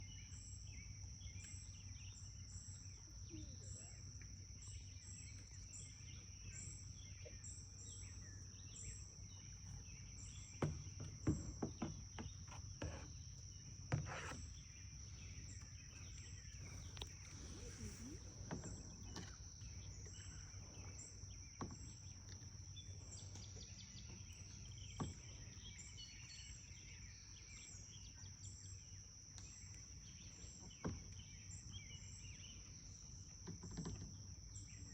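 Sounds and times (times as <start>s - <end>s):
insects droning: 0.0s - 34.9s
birds calling: 4.7s - 27.8s.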